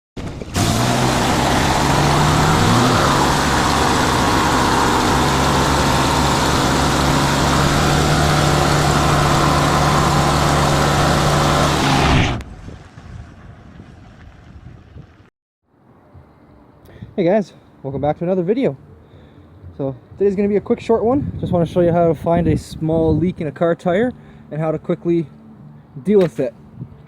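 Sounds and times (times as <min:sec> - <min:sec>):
motor running loudly: 0:00.6 - 0:12.4.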